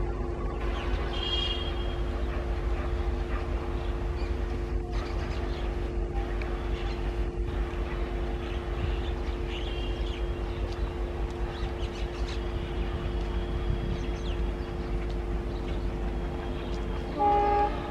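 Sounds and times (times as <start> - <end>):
constant hum: 0.0 - 17.9
train rumbling: 0.0 - 17.9
birds chirping and whistling: 8.4 - 16.7.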